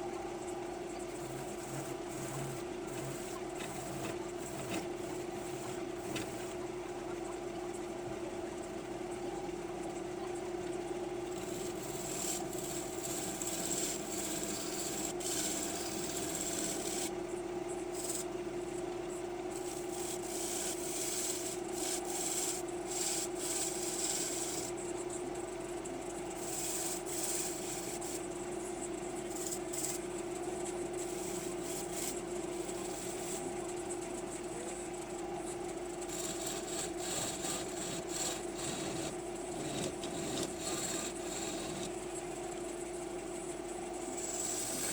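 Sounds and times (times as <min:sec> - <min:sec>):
gouge scraping wood: 0:01.1 - 0:06.6, 0:11.4 - 0:17.1, 0:19.6 - 0:24.8, 0:26.4 - 0:28.2, 0:31.0 - 0:33.5, 0:36.0 - 0:42.0, 0:44.2 - 0:44.9
wood lathe humming: 0:01.1 - 0:06.6, 0:11.3 - 0:17.1, 0:19.6 - 0:24.8, 0:31.0 - 0:33.5, 0:36.0 - 0:42.1, 0:44.0 - 0:44.9.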